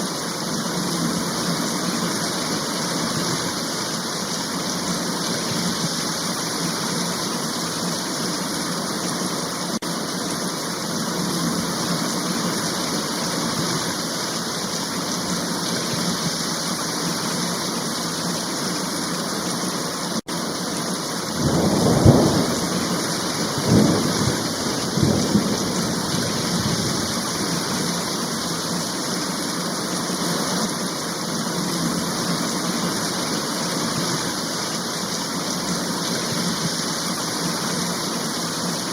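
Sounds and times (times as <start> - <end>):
heavy rain falling: 0.0 - 38.9
thunder rumbling: 21.3 - 27.7.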